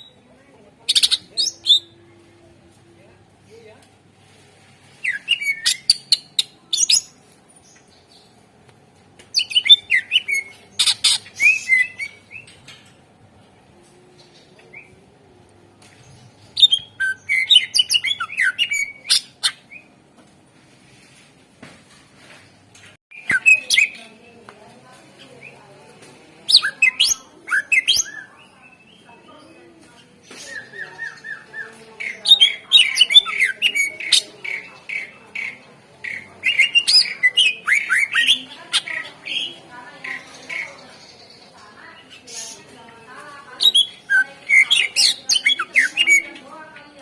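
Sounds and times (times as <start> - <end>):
bird chirping and whistling: 5.0 - 7.0, 9.4 - 12.4, 16.6 - 19.6, 23.1 - 24.0, 26.5 - 28.3, 36.4 - 39.0.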